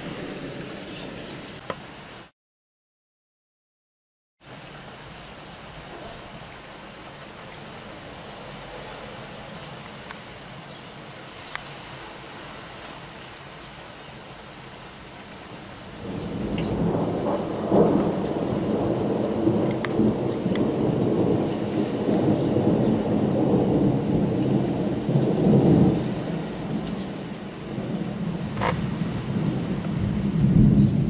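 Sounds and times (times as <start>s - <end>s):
rain falling: 0.0s - 2.3s, 4.4s - 31.0s
thunder rumbling: 15.5s - 31.0s.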